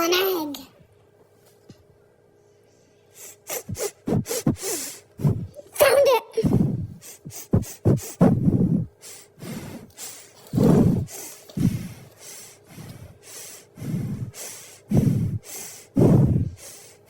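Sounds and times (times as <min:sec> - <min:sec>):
dog snorting and sniffing: 0:06.5 - 0:13.2.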